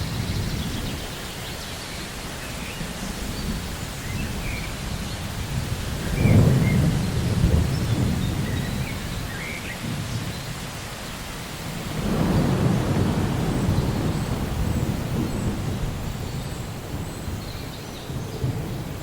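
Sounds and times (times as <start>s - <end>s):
steady rain: 0.0s - 19.0s
thunder rumbling: 3.2s - 10.5s, 11.7s - 19.0s.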